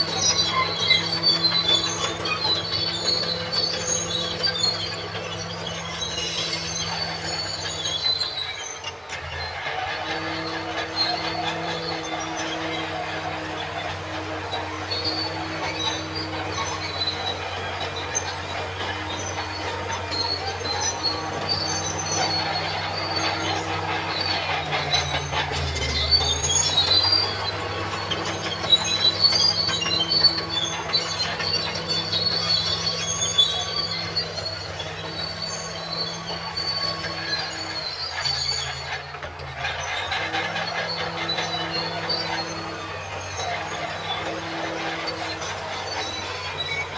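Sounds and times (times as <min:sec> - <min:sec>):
diesel engine running: 0:00.0 - 0:46.9
steel tracks squealing and clanking: 0:00.0 - 0:46.9.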